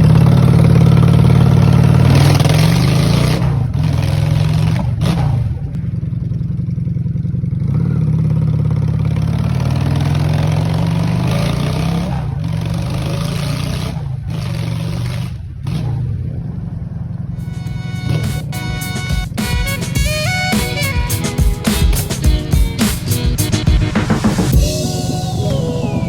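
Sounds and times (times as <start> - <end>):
motorcycle engine with loud open exhaust: 0.0 - 18.3.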